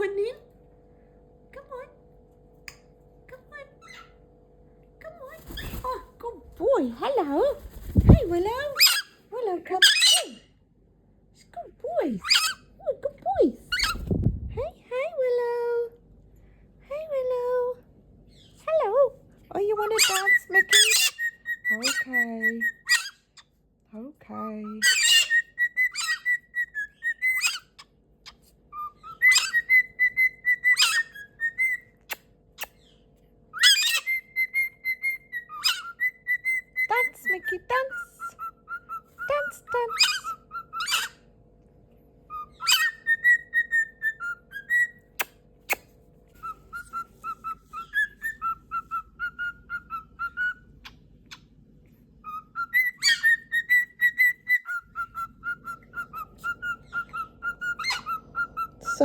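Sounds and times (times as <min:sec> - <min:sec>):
parrot squawks: 0:07.8 - 0:10.5, 0:12.2 - 0:12.7, 0:19.8 - 0:23.5, 0:24.3 - 0:32.9, 0:33.6 - 0:41.2, 0:42.3 - 0:51.4, 0:52.2 - 0:59.0
parrot whistling a tune: 0:20.0 - 0:23.2, 0:24.6 - 0:27.9, 0:28.7 - 0:41.2, 0:42.3 - 0:45.8, 0:46.4 - 0:51.4, 0:52.2 - 0:59.0.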